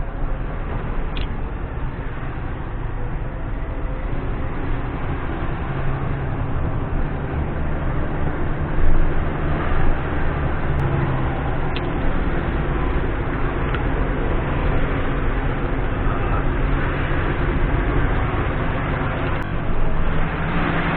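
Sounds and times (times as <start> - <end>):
diesel truck engine running: 0.0 - 20.9.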